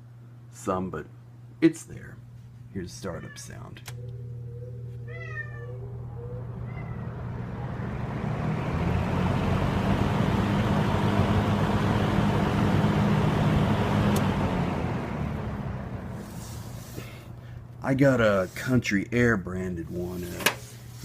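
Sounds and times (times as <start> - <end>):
fan motor whine: 0.0 - 21.0
box fan rushing air: 5.8 - 21.0.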